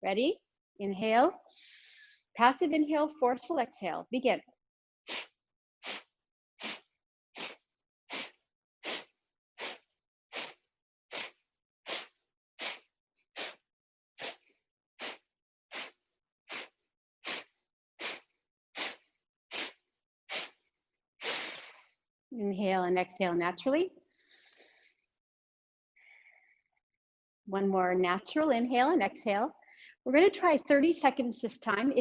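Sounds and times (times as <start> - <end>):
forceful exhales through the nose: 1.5 - 2.2, 5.1 - 13.6, 14.2 - 20.6, 21.2 - 22.0.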